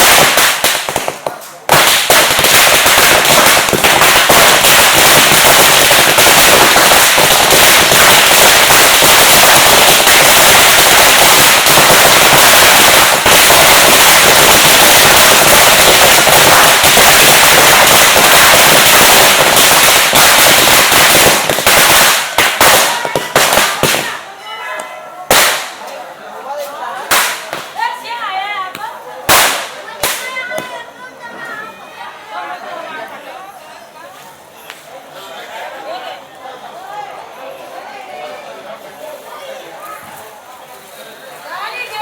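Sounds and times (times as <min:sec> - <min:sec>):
firecrackers cracking: 0:00.0 - 0:24.4, 0:25.3 - 0:26.0, 0:27.0 - 0:28.0, 0:28.7 - 0:30.9.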